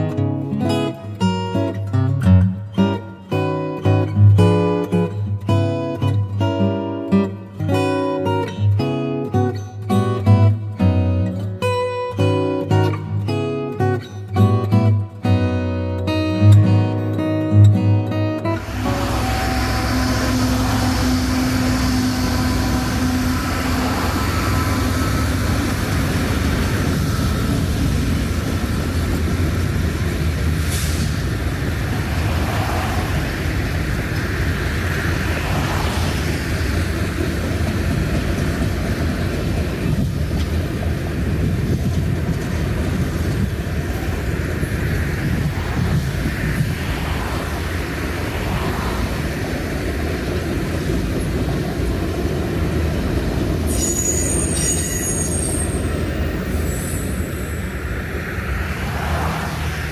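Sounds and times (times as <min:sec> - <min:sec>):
train rumbling by: 0:18.1 - 0:59.9.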